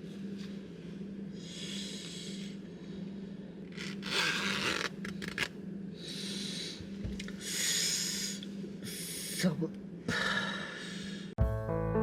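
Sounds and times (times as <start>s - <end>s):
steady low hum: 0.0s - 11.4s
person breathing heavily: 0.6s - 3.6s, 6.0s - 9.2s, 10.1s - 11.4s.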